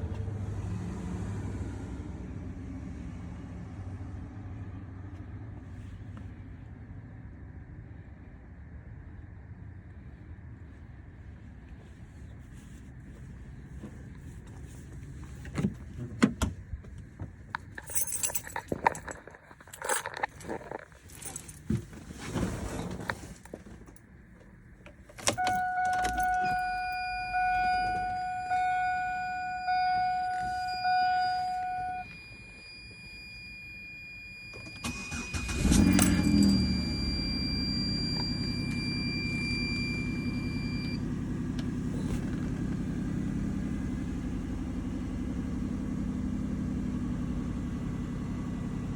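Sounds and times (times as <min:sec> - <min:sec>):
car engine starting and idling: 0:00.0 - 0:48.9
keys jangling: 0:17.6 - 0:21.7, 0:25.1 - 0:26.9
dashboard warning chime: 0:25.2 - 0:41.0.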